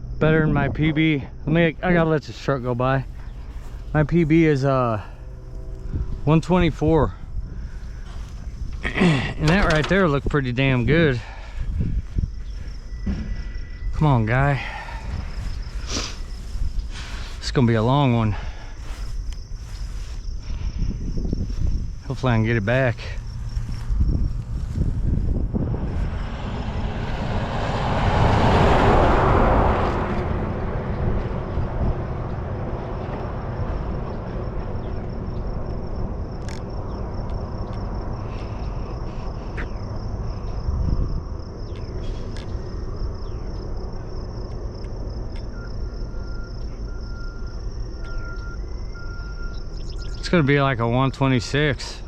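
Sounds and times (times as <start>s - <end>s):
wind rumble on microphone: 0.0s - 50.3s
insects droning: 0.0s - 52.0s
road vehicle passing by: 22.6s - 50.5s.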